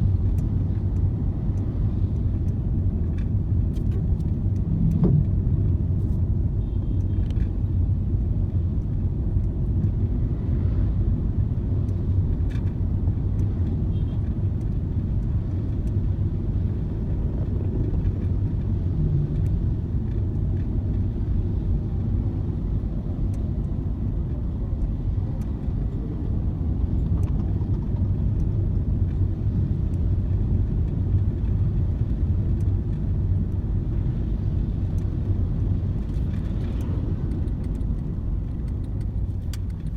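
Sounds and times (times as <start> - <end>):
car rumble while driving: 0.0 - 39.9.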